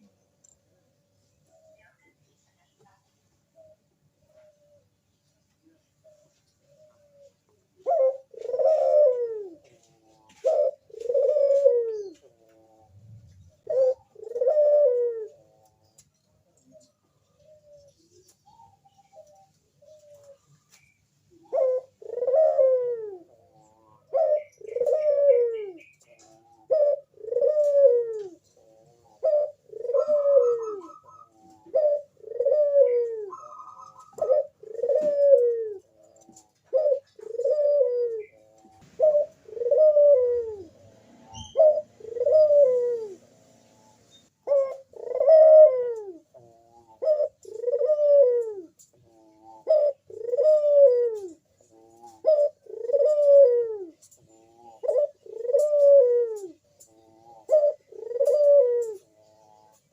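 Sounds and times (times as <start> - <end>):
dove cooing: 3.5 - 5.0, 5.6 - 59.9.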